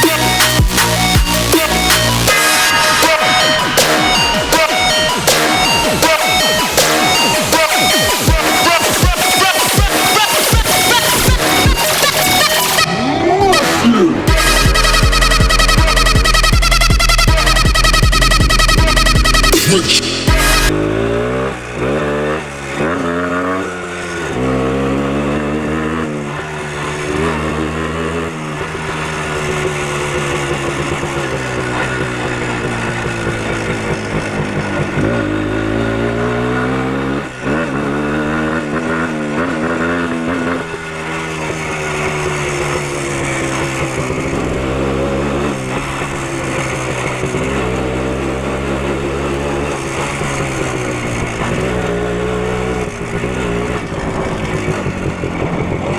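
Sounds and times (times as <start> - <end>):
motorcycle engine shifting gears: 20.3 - 55.9.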